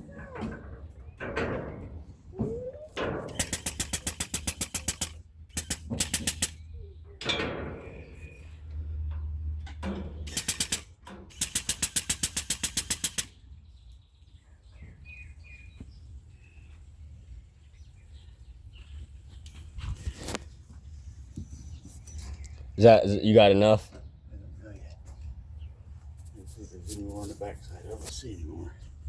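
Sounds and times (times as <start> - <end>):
rapid mechanical clicking: 3.3 - 6.6, 10.3 - 13.3.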